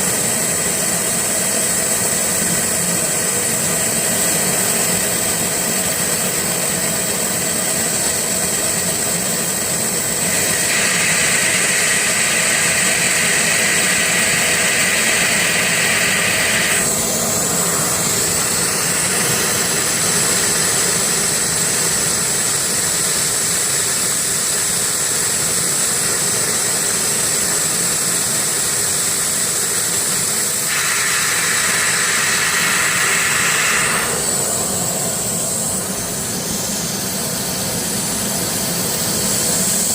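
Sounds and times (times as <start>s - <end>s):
laser cutter hiss and whine: 0.0s - 39.9s
harsh buzzing: 30.7s - 36.8s.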